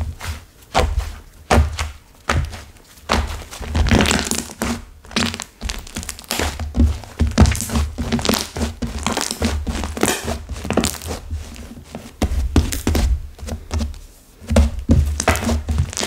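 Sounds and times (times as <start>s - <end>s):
hard slime crackling and crunching: 0.7s - 11.6s, 14.8s - 16.0s
soft low thuds: 12.2s - 15.9s.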